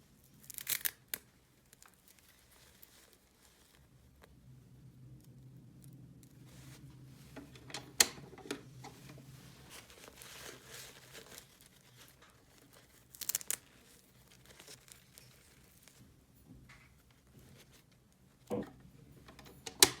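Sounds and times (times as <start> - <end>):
plastic packaging crinkling: 9.0 - 15.9.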